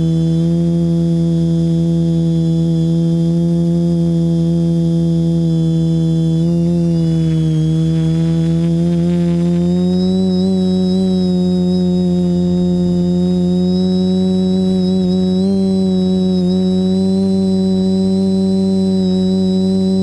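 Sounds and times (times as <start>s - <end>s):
quadcopter propellers humming: 0.0s - 20.0s.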